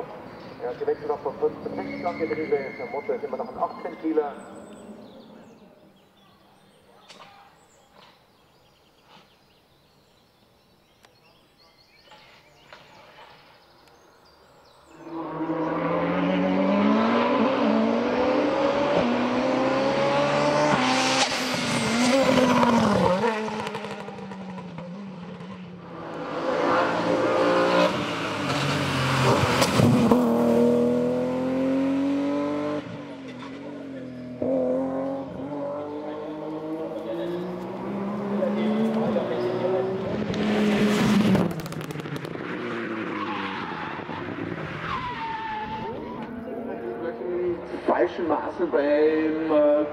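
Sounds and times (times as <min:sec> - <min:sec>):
race car engine at full throttle: 0:14.8 - 0:49.9.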